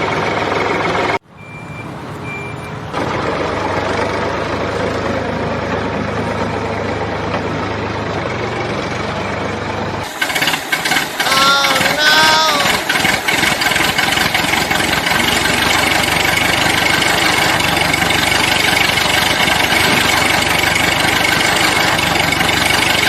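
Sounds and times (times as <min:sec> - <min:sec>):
short high beeps: 0:01.4 - 0:02.7.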